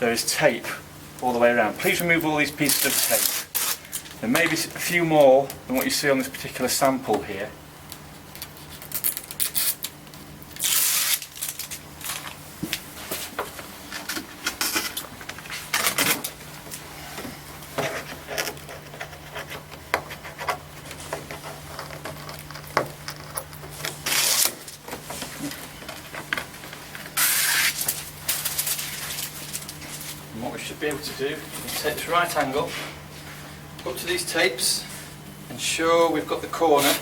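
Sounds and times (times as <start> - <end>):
steady low hum: 0.0 - 37.0
tape backing ripping: 1.9 - 6.0, 7.9 - 12.4, 21.4 - 25.6, 26.9 - 30.2.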